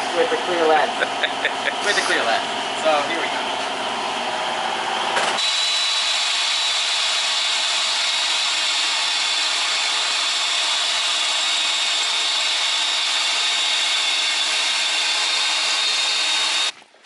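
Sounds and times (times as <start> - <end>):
power drill whining into steel: 5.3 - 16.8.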